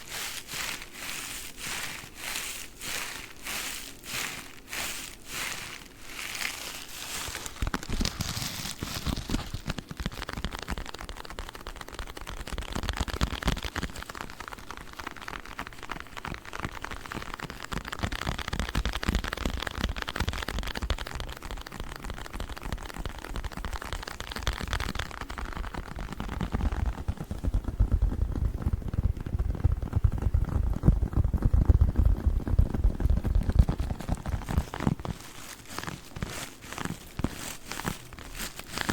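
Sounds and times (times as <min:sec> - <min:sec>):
sponges swishing and crinkling: 0:00.0 - 0:09.9, 0:33.1 - 0:38.9.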